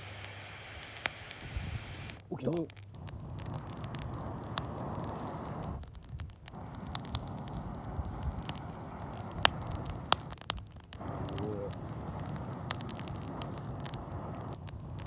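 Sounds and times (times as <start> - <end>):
campfire crackling and popping: 0.0 - 15.0
steady rushing noise: 3.0 - 15.0.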